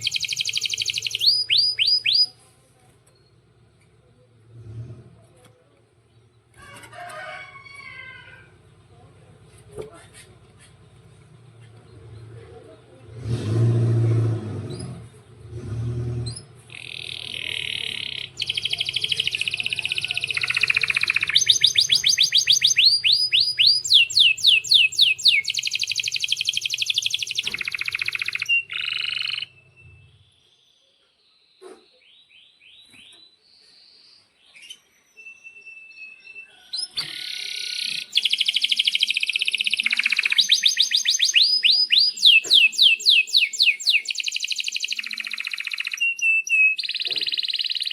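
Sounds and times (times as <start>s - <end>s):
canary singing trills: 0.0s - 2.4s, 16.2s - 31.0s, 31.7s - 47.9s
soft bird chirps: 0.0s - 4.3s, 16.3s - 47.9s.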